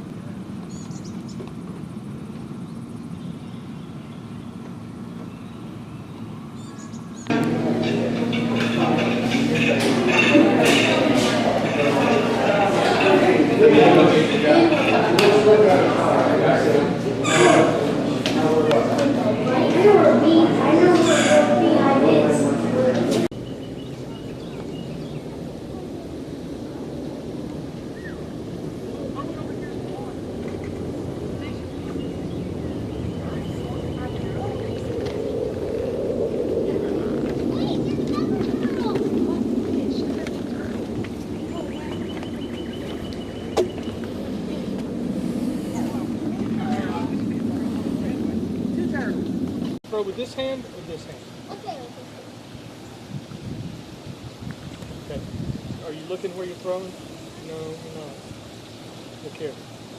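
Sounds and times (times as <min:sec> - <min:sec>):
loud steady hum: 0:00.0 - 0:52.1
low rumble: 0:07.3 - 0:49.8.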